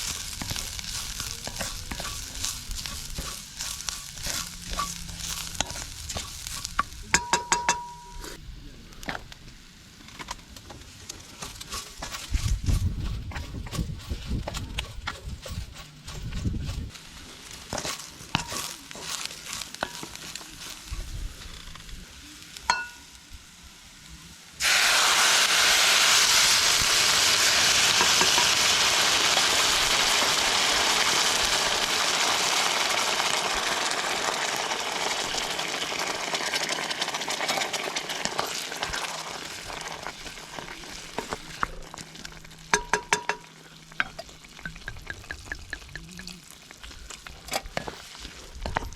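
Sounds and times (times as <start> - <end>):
food sizzling in hot oil: 0.0 - 8.2, 16.6 - 48.9
cooking utensils clinking: 0.1 - 8.4, 42.7 - 46.0.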